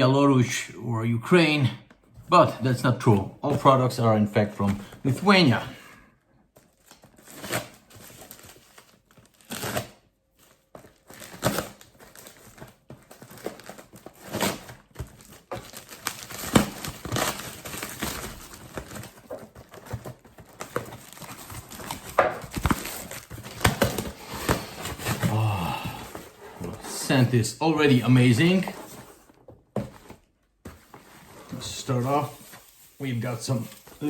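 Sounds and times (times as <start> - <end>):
packaging crinkling and rustling: 6.5 - 27.1, 27.9 - 34.0
packaging tearing: 10.8 - 25.6.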